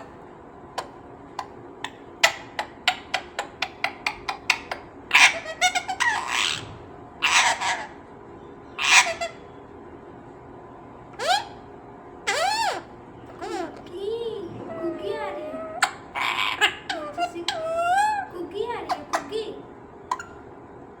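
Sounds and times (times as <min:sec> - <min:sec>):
parrot screeching: 0:01.8 - 0:08.0, 0:08.8 - 0:09.4, 0:11.2 - 0:11.6, 0:12.2 - 0:13.8, 0:14.7 - 0:19.4, 0:20.1 - 0:20.4.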